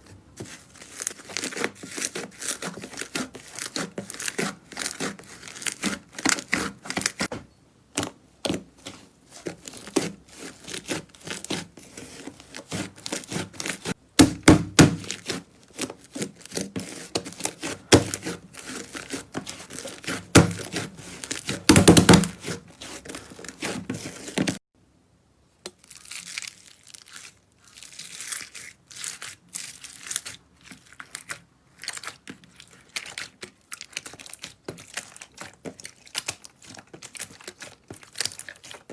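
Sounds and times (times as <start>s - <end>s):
slime squelching: 0.0s - 24.6s, 25.8s - 38.9s
slime crackling and popping: 25.7s - 38.9s.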